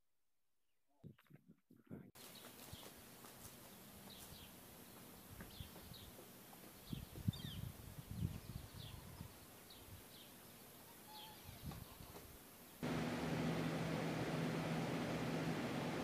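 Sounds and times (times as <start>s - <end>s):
small birds chirping: 3.6s - 12.8s
steady hiss with low hum: 7.6s - 16.0s.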